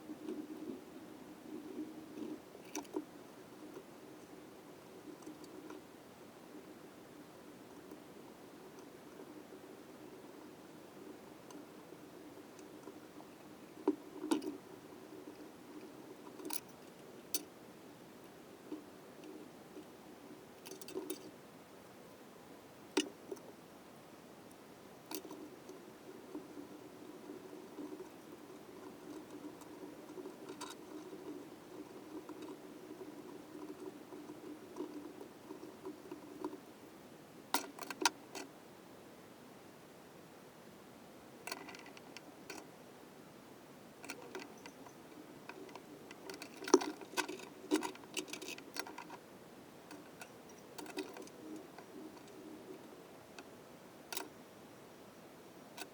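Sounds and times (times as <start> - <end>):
faint steady hum: 0.0 - 55.9
soft handling patter: 24.5 - 36.8, 44.0 - 54.6.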